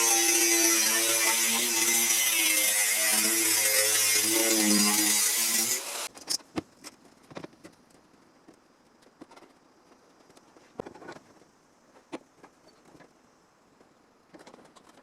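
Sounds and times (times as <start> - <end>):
loud noisy power tool: 0.0 - 6.1.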